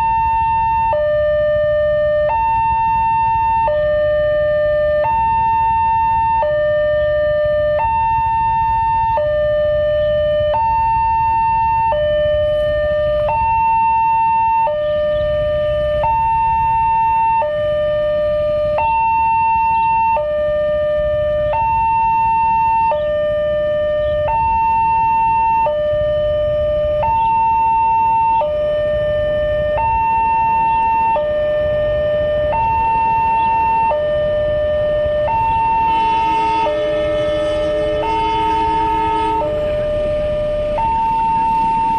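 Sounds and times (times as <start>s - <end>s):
level crossing alarm two tones: 29.6s - 41.9s.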